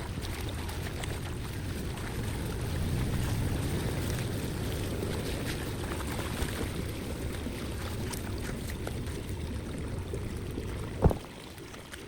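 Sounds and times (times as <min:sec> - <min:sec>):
water flowing with splashes: 0:00.0 - 0:12.0
sharp thump: 0:11.0 - 0:11.2.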